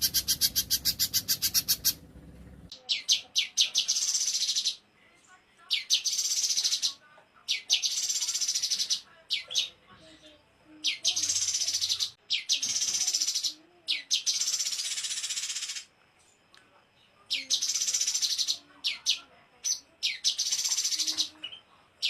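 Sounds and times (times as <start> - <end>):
songbird chips and buzzy trill: 0.0 - 2.0.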